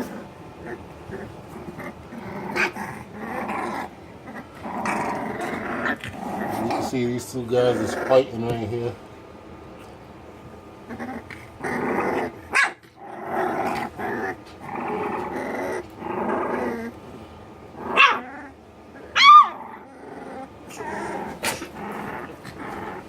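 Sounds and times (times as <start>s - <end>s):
puppies yelping: 0.0s - 7.0s, 17.8s - 23.0s
puppies growling: 0.0s - 23.0s.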